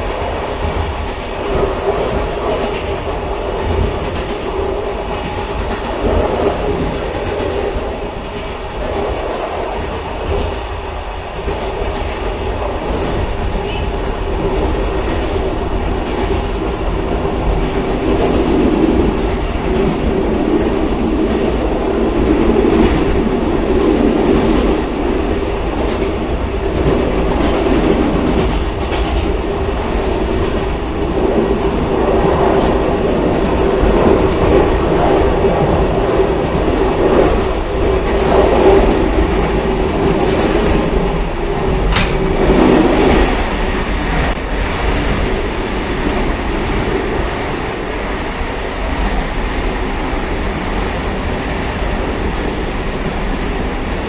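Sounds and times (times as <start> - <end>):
railcar rumbling on track: 0.0 - 54.0
wheels clicking over rails: 41.5 - 45.8.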